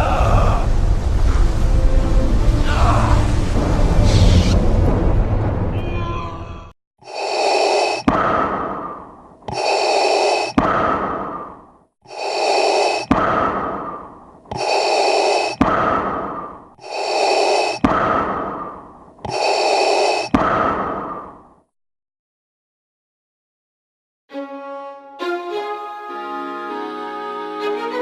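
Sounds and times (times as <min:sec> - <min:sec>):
respirator breathing hiss: 0:09.5 - 0:10.6, 0:12.1 - 0:13.6, 0:14.5 - 0:15.6, 0:16.8 - 0:17.9, 0:19.3 - 0:20.3.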